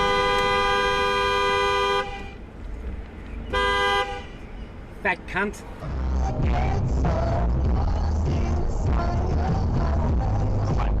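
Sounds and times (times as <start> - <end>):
two-note car horn: 0.0 - 2.4.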